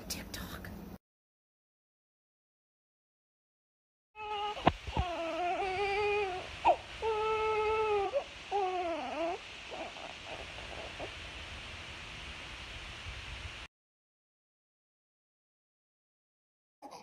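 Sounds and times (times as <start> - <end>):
infant crying: 4.2 - 11.1
steady hiss: 4.2 - 13.7.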